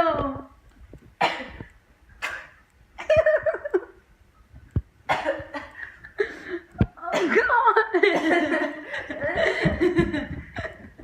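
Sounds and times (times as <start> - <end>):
person coughing and gagging: 1.2 - 2.6, 5.1 - 5.8, 7.0 - 10.8.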